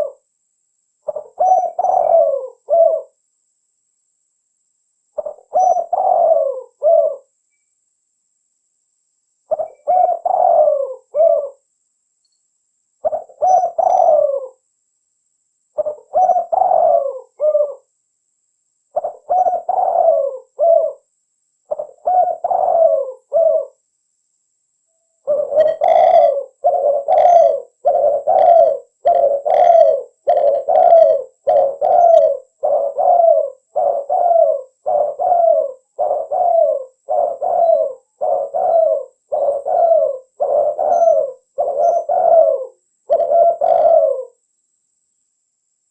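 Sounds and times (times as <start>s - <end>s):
dove cooing: 0.0s - 0.2s, 1.0s - 3.2s, 5.2s - 7.3s, 9.5s - 11.7s, 13.0s - 14.6s, 15.8s - 17.9s, 18.9s - 21.1s, 21.7s - 23.8s, 25.2s - 44.4s.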